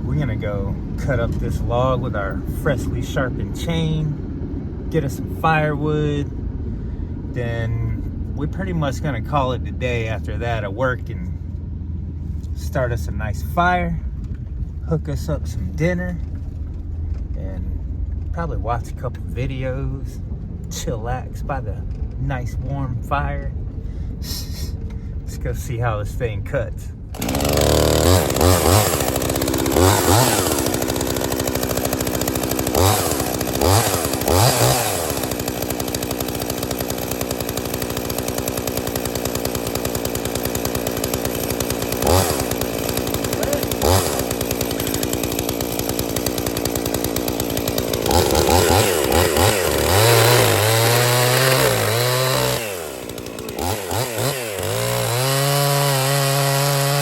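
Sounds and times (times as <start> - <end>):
chainsaw revving: 27.1 - 57.0.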